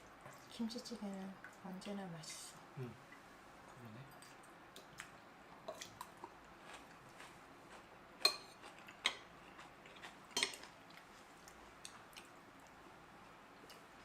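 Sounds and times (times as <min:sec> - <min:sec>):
cutlery clinking on dishes: 0:10.3 - 0:10.7.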